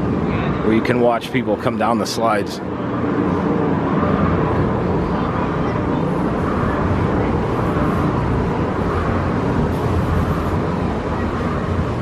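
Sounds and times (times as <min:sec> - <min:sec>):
loud rumbling outdoor noise: 0:00.0 - 0:12.0.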